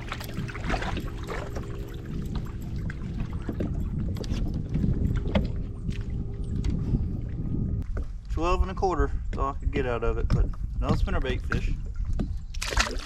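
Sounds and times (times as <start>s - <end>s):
water lapping against hull: 0.0s - 8.2s, 9.0s - 13.0s
steady low hum: 0.0s - 10.7s
brief splashes: 12.6s - 13.0s.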